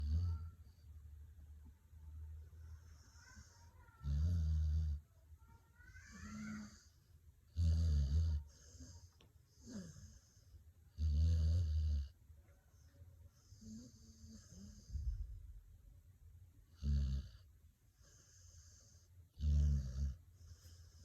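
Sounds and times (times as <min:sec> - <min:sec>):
dog snoring: 0:02.8 - 0:05.0, 0:07.5 - 0:12.2, 0:13.4 - 0:15.3, 0:16.7 - 0:21.0.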